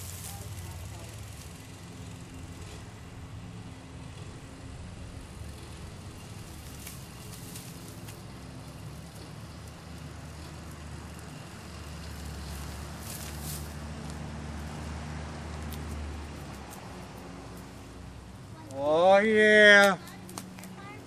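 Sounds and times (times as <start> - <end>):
low engine hum: 0.0 - 21.0
brush fire crackling and popping: 5.2 - 14.8, 19.6 - 20.8.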